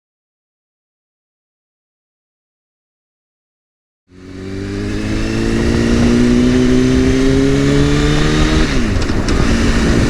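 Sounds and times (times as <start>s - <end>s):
vehicle engine accelerating: 4.1s - 10.0s.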